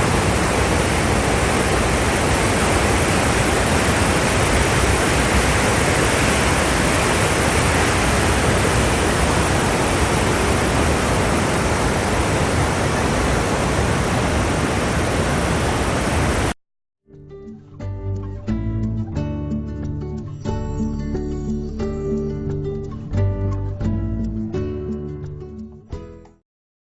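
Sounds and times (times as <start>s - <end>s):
waterfall rushing: 0.0s - 16.6s
music: 17.0s - 26.4s.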